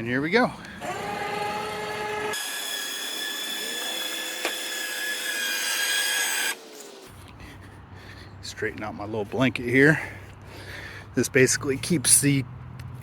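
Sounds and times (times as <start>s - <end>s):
electric winch motor whine: 0.7s - 7.0s.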